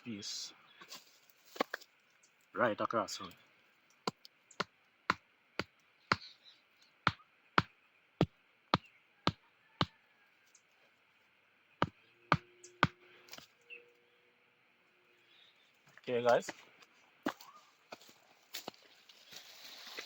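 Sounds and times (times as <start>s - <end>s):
wooden stake hammered into ground: 4.0s - 6.3s, 7.0s - 10.0s, 11.8s - 13.0s.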